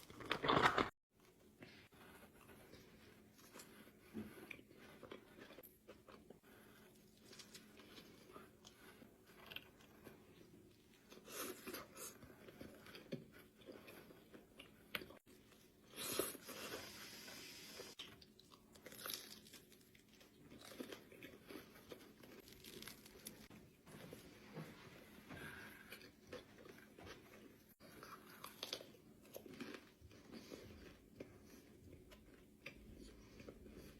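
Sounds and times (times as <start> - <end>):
chewing: 2.1 - 16.8, 17.9 - 23.5, 24.1 - 33.9
crisp crust crunching: 18.8 - 23.5.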